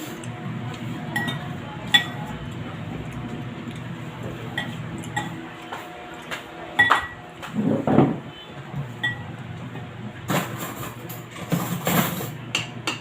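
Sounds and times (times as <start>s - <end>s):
cutlery clinking against a dish: 10.4s - 13.0s.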